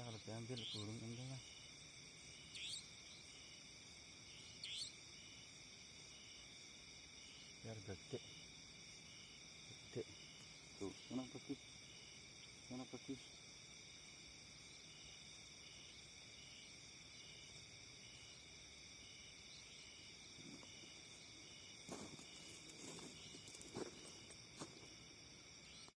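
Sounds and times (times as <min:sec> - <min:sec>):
crickets and insects chirring: 0:00.0 - 0:26.0.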